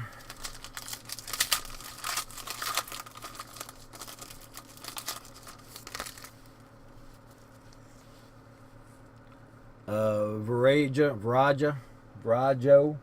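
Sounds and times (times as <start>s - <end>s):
wrapper crinkling and tearing: 0.0s - 6.5s.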